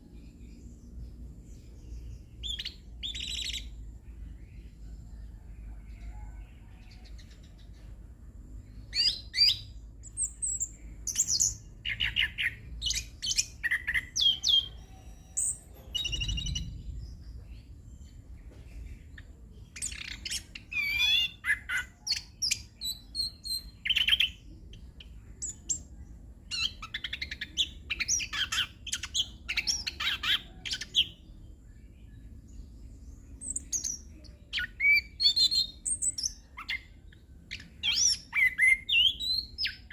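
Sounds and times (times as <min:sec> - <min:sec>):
faint low hum: 0:00.0 - 0:39.9
thrush singing whistles and trills: 0:02.0 - 0:04.6, 0:08.7 - 0:17.5, 0:19.7 - 0:31.3, 0:33.2 - 0:39.9.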